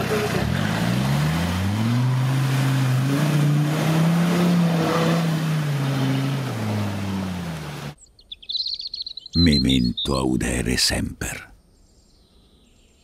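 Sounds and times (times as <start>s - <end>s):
engine revving under load: 0.0s - 8.0s.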